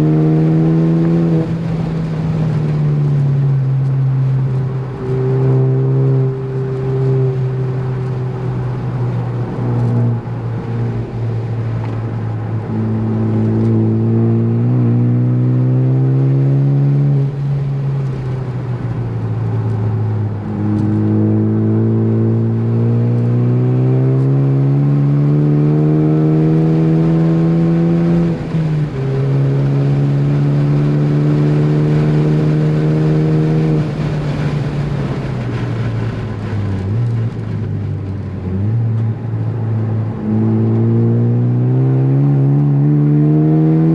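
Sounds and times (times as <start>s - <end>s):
car engine revving hard: 0.0s - 1.9s, 12.5s - 17.6s, 19.8s - 34.5s, 39.6s - 43.9s.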